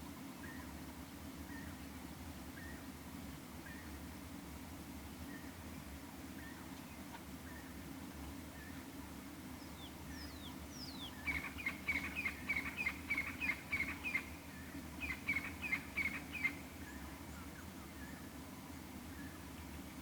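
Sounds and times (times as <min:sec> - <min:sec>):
bird calling: 0:09.8 - 0:14.4, 0:15.0 - 0:17.0.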